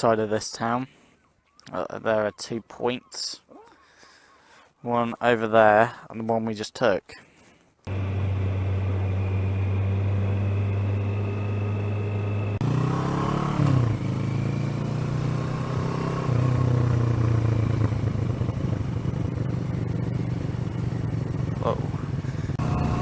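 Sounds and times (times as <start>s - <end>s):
motorcycle engine running: 7.9s - 23.0s.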